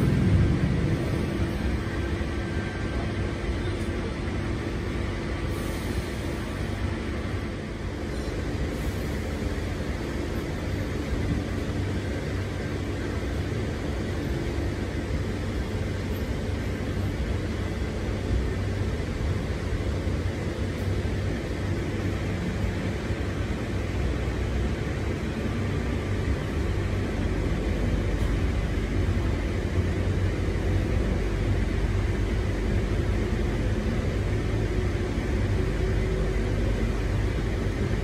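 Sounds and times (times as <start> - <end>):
train wheels rumbling on track: 0.0 - 38.0.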